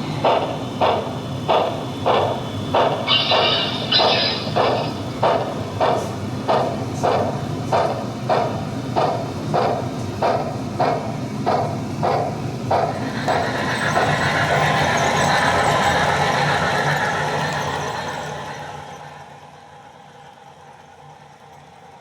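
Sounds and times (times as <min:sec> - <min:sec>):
steam locomotive chuffing: 0:00.0 - 0:22.0
steam whistle blasts: 0:03.1 - 0:05.2.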